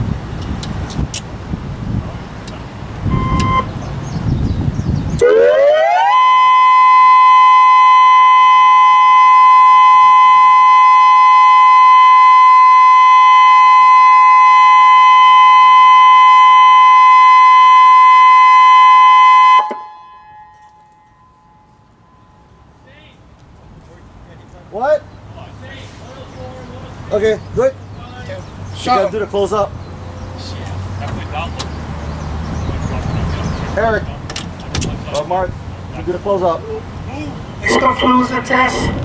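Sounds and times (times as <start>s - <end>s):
electronic warning siren steady tone: 3.1s - 3.7s, 5.2s - 21.7s, 37.6s - 38.9s.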